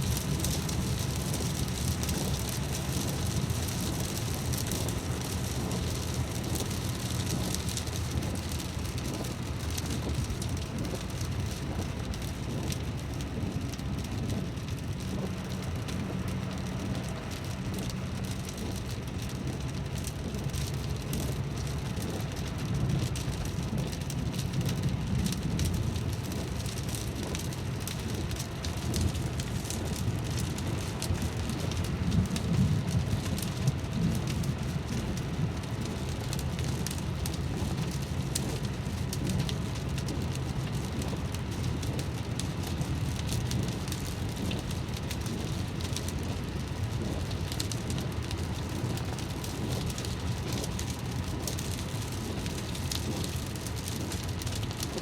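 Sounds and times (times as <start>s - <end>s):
raindrops hitting: 0.0s - 55.0s.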